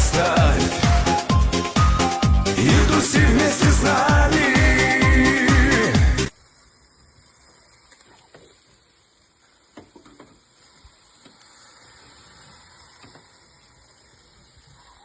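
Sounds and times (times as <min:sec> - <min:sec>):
chicken sizzling on a grill: 0:06.3 - 0:15.0
small clicks and crackles: 0:06.8 - 0:15.0.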